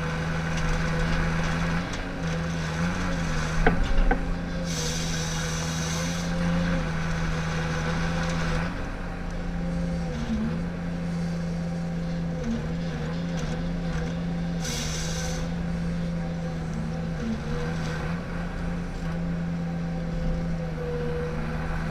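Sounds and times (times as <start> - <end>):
diesel engine running: 0.0 - 21.9
short hiss: 4.6 - 6.3, 14.6 - 15.5.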